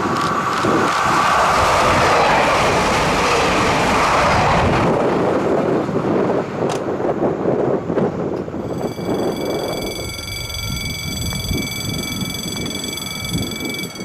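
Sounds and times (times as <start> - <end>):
high train whine: 0.0 - 14.0
train wheel and running noise: 0.0 - 14.0.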